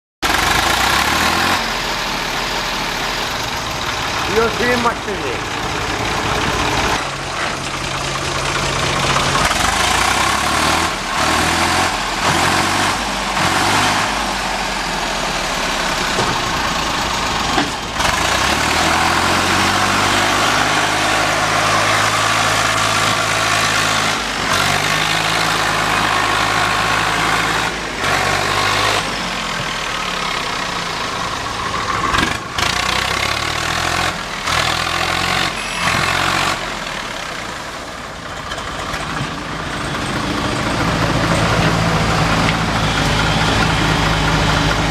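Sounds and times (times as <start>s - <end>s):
tractor diesel engine running: 0.2s - 44.9s.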